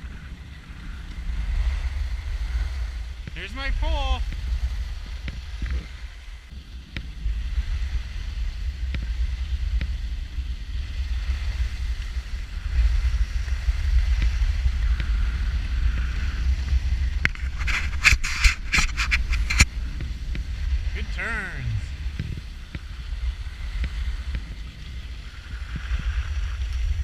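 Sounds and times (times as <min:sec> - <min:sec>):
skis sliding on snow: 0:00.0 - 0:27.0
wind buffeting microphone: 0:00.0 - 0:27.0
ski edges scraping snow: 0:15.4 - 0:22.5.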